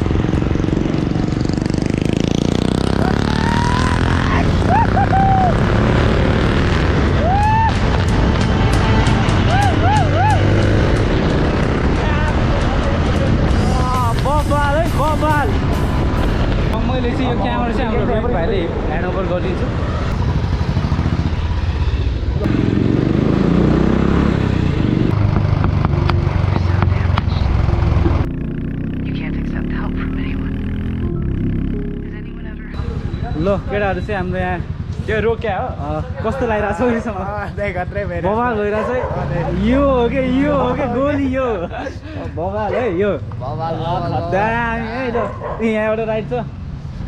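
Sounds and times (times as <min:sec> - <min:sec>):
motorcycle engine running: 0:00.0 - 0:07.1, 0:20.2 - 0:39.6.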